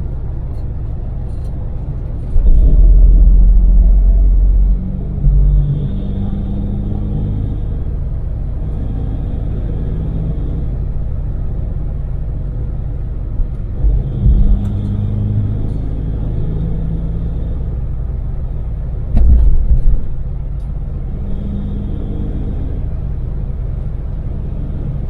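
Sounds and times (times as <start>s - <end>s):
road noise: 0.0s - 25.0s
van engine rumbling: 0.0s - 25.0s
heavy low thumps: 2.2s - 11.8s, 13.2s - 18.2s.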